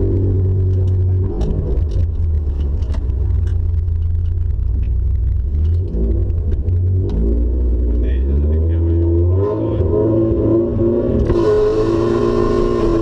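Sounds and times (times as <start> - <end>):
exhaust pops and clicks: 0.0 - 9.1
car engine droning: 0.0 - 13.0.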